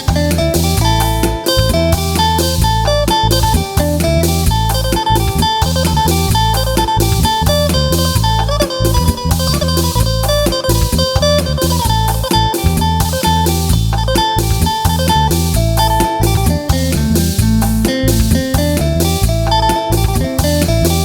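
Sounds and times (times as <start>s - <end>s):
drum kit beat: 0.0s - 21.0s
heavy booming bass: 0.0s - 21.0s
plucked lute fast melody: 0.0s - 21.0s.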